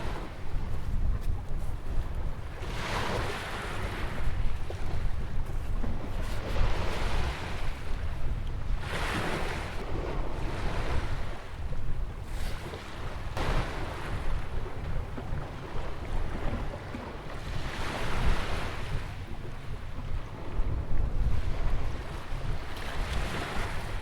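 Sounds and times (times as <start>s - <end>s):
wind rumble on microphone: 0.0s - 24.0s
surf breaking and washing in: 13.4s - 14.8s.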